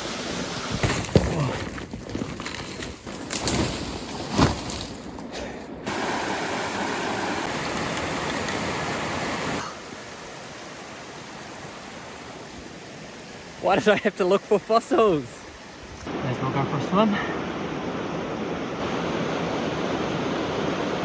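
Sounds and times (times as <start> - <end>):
knocks and splashes: 0.7 - 9.1
water rushing: 5.8 - 21.0.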